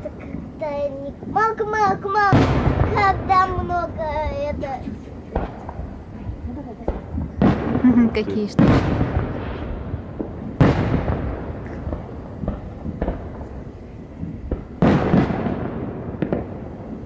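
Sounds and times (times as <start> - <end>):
small pops and crackles: 0.0 - 7.9, 10.2 - 15.6
fireworks booming: 0.0 - 17.0.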